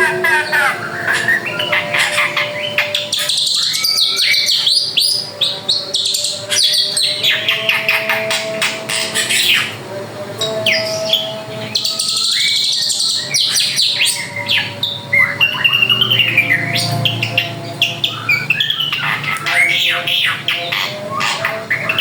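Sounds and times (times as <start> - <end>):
bird singing whistles and chirps: 0.0 - 9.7, 10.7 - 22.0.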